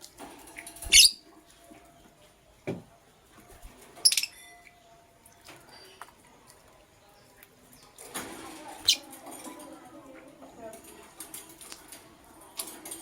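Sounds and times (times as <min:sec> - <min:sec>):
birds moving about scratchily: 0:00.0 - 0:02.0, 0:03.3 - 0:04.2, 0:07.6 - 0:13.0
lovebirds chirping: 0:00.6 - 0:02.6, 0:03.5 - 0:04.8.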